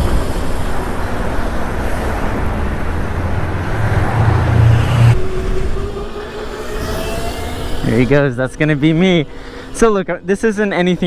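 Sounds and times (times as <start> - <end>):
wind and road noise roar: 0.0 - 11.0
deep rumble: 1.6 - 9.6.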